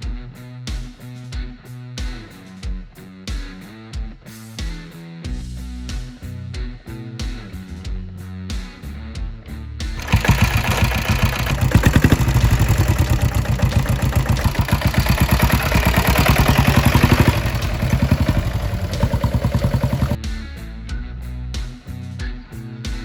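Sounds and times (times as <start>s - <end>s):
diesel motorcycle engine running: 10.0s - 20.2s.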